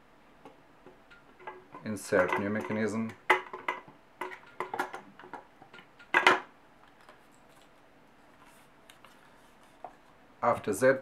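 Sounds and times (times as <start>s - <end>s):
metal mechanism clicks and knocks: 1.1s - 6.5s.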